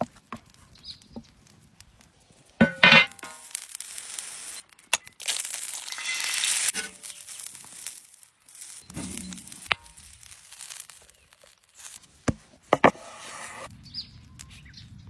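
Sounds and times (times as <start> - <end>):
crinkling and crushing: 0.0 - 14.6
hissing: 1.7 - 12.1.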